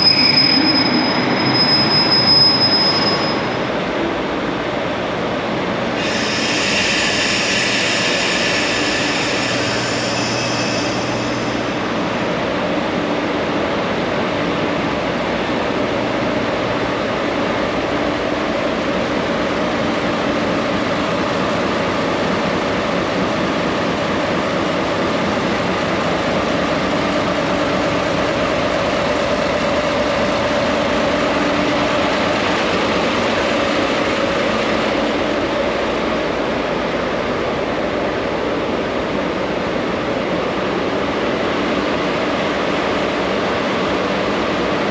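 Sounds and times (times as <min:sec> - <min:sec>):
high wheel squeal: 0:00.0 - 0:03.7, 0:06.0 - 0:12.4
train engine and rail roar: 0:00.0 - 0:44.9.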